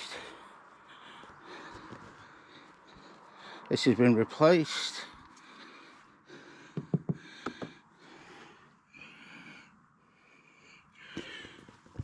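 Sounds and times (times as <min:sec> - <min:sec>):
person breathing close to microphone: 0:00.0 - 0:03.7, 0:05.2 - 0:12.0
faint taps: 0:06.8 - 0:07.8.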